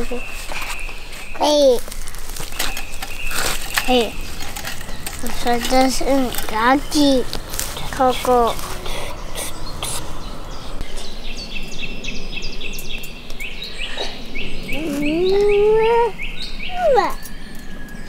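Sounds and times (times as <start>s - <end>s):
songbird chirping: 0.0s - 18.0s
person's voice: 5.2s - 10.0s, 14.7s - 17.2s.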